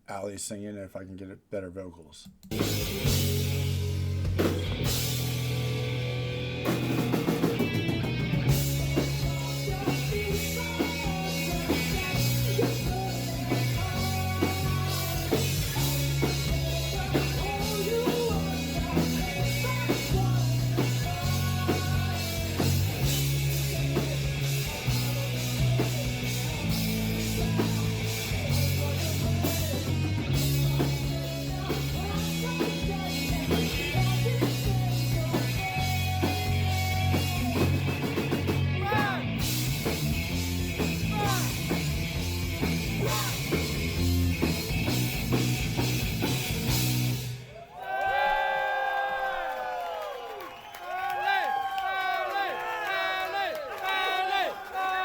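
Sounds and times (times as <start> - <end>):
live rock band playing: 2.5 - 47.5
female lead vocal: 9.2 - 22.6, 30.4 - 37.7, 41.0 - 41.7, 42.6 - 43.6.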